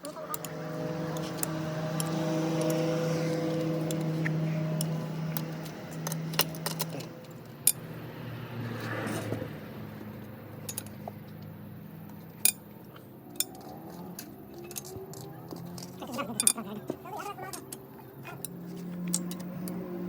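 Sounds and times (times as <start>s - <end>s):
metal tools clinking: 0.0s - 7.8s, 10.5s - 11.5s, 12.1s - 19.8s
low steady hum: 0.0s - 8.8s.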